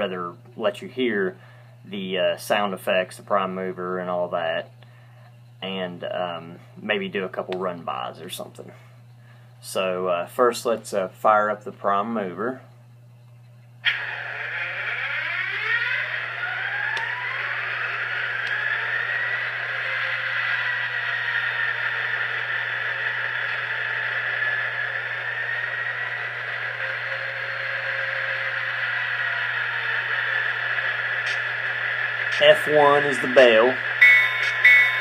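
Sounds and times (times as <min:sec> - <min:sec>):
high turbo whine: 0:13.8 - 0:35.0
model locomotive diesel engine sound: 0:13.8 - 0:35.0.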